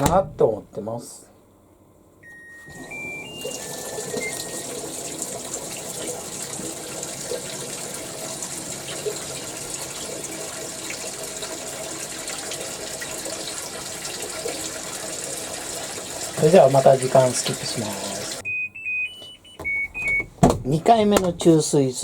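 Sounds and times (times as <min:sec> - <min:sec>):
washing machine melody of beeps: 0:02.2 - 0:08.0, 0:16.2 - 0:21.2
water rushing into tub: 0:02.7 - 0:18.4.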